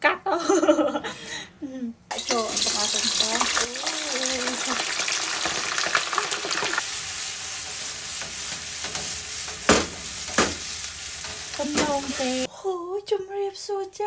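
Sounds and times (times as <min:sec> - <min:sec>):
meatballs sizzling in oil: 0:02.1 - 0:12.5
frying pan knocks: 0:08.9 - 0:10.7.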